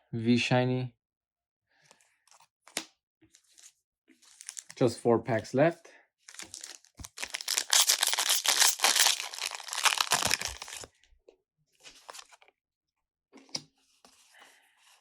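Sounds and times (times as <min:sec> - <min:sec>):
foil wrapper tearing: 0:04.4 - 0:04.7, 0:06.3 - 0:10.9.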